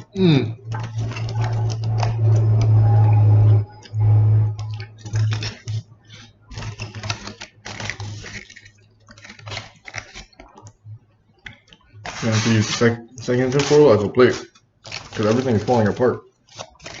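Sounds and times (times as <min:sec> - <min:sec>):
steady low hum: 0:00.0 - 0:16.4
foil wrapper crinkling: 0:00.7 - 0:02.2, 0:04.6 - 0:10.7, 0:12.0 - 0:17.0.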